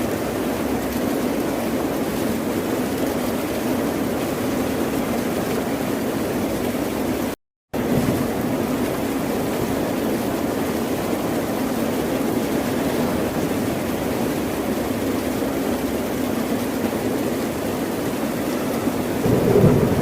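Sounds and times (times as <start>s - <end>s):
ocean surf washing: 17.7s - 20.0s.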